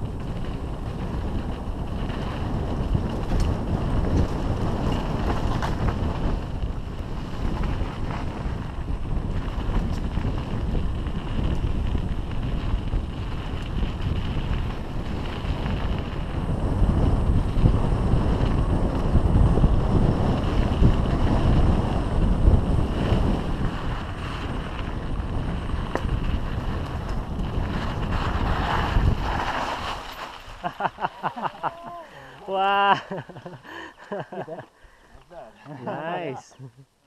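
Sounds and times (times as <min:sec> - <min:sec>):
wind buffeting microphone: 0:00.0 - 0:36.3
bike knocks: 0:25.8 - 0:26.2.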